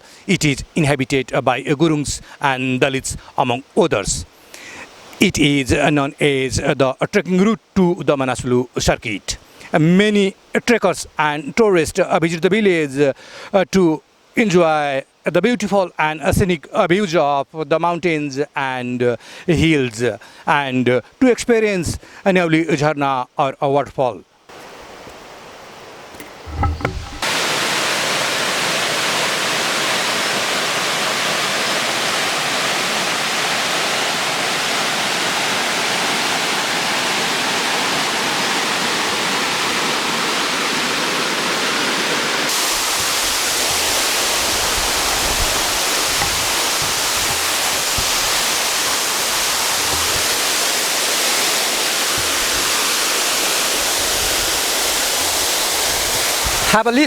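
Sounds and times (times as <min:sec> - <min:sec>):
waterfall roaring: 0:26.2 - 0:57.0.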